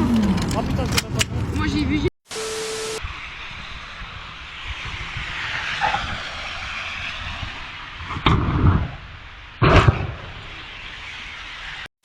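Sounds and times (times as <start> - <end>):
steady rushing noise: 2.4 - 11.9.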